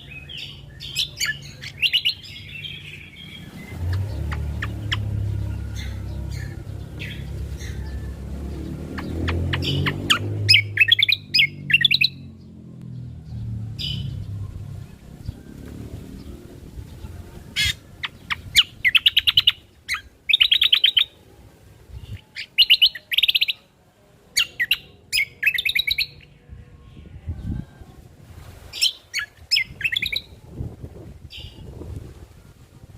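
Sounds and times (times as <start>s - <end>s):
bird singing rapid trills: 0.0s - 21.2s, 24.4s - 26.4s, 28.8s - 30.4s.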